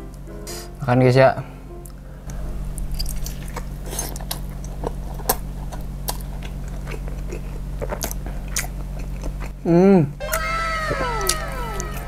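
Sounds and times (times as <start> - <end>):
wet chewing clicks and squelches: 3.2 - 9.6.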